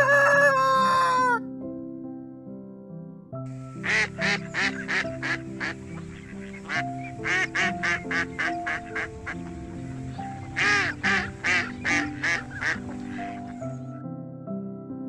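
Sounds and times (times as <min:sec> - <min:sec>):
background music: 0:00.0 - 0:15.0
duck quacking: 0:03.8 - 0:09.4, 0:10.5 - 0:13.6.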